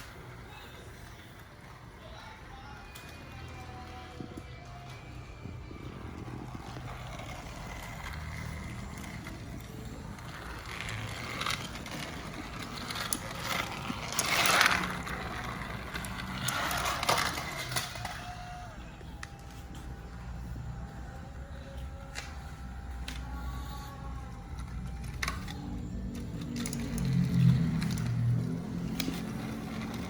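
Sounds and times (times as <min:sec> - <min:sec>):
wheels rattling on plastic track: 0:05.5 - 0:19.8, 0:20.4 - 0:30.0
toy train motor hum: 0:06.0 - 0:30.0.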